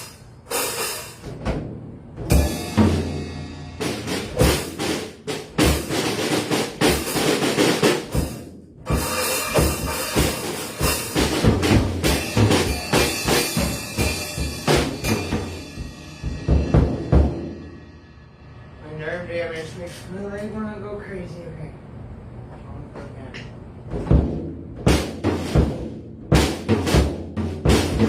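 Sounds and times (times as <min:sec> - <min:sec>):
drum kit playing busy pattern: 0:00.0 - 0:18.2, 0:23.9 - 0:28.0.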